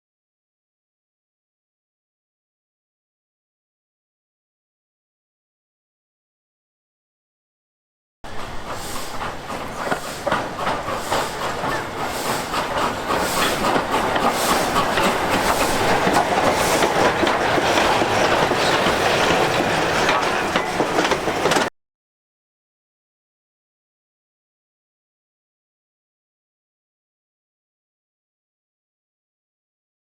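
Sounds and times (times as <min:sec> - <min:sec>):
train wheels clattering over rails: 0:08.3 - 0:21.7.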